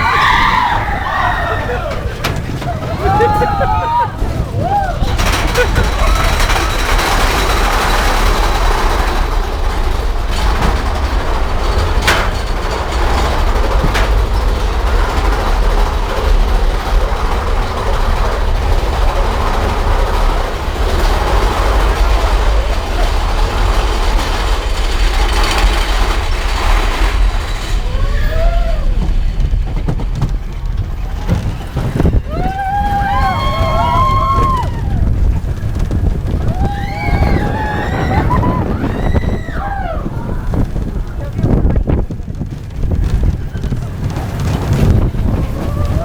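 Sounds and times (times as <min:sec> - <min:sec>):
roller coaster wheels rumbling: 0:00.0 - 0:46.0
sharp clacks: 0:04.4 - 0:27.9.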